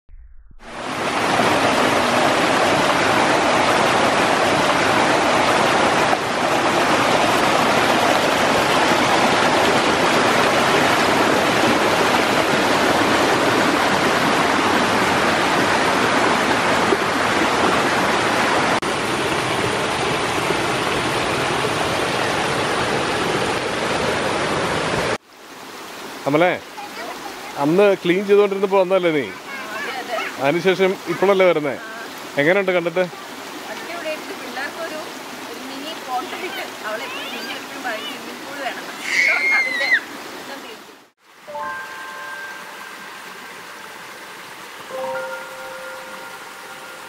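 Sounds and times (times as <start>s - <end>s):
stream water rushing over stones: 0.7s - 47.0s.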